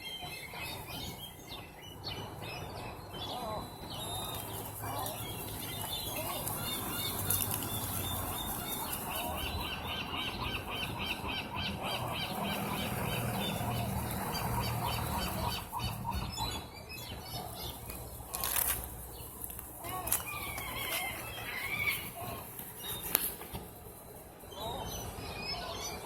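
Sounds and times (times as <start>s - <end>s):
gulls calling: 0.0s - 18.7s.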